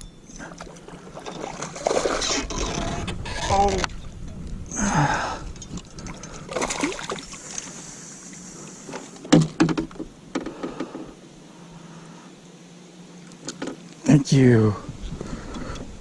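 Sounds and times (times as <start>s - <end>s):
sharp knocks in a boat: 9.2s - 11.0s.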